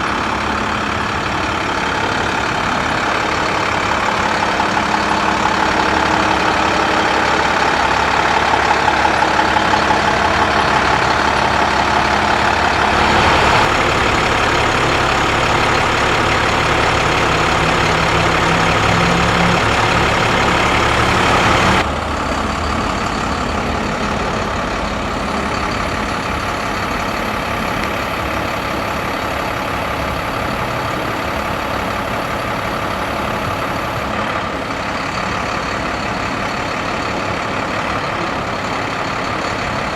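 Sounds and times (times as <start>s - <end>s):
diesel truck engine running: 0.0s - 39.9s
thin high whine: 25.2s - 34.1s.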